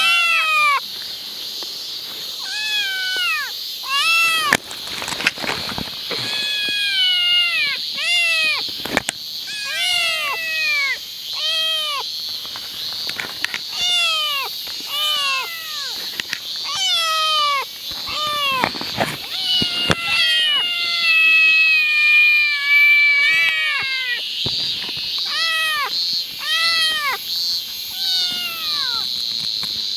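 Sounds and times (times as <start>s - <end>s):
cat meowing: 0.0s - 0.8s, 2.4s - 4.6s, 6.1s - 8.7s, 9.4s - 12.1s, 13.7s - 16.0s, 16.6s - 24.2s, 25.2s - 27.2s, 27.9s - 29.1s.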